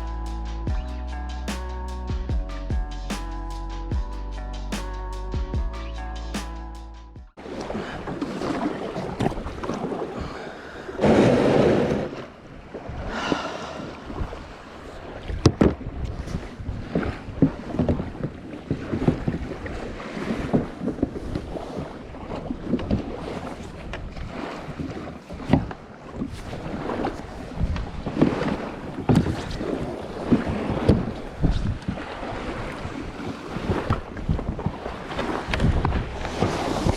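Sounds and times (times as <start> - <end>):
wind buffeting microphone: 11.0 - 36.9.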